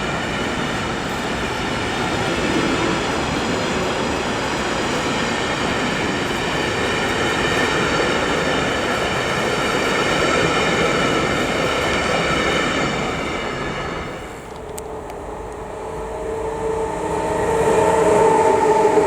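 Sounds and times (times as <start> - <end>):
train passing: 0.0 - 19.0
high steady tones: 14.1 - 19.0.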